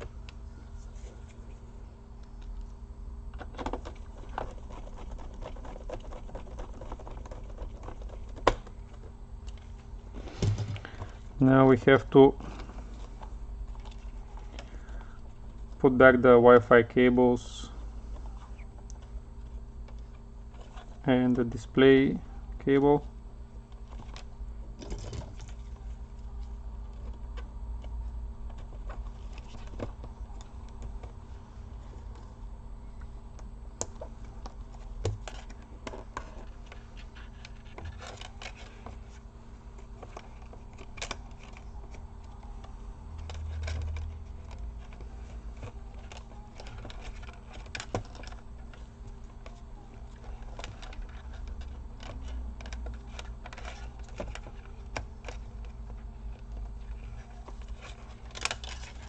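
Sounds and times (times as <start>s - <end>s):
plastic laptop parts clicking: 3.3s - 9.8s, 26.2s - 31.2s, 33.4s - 59.0s.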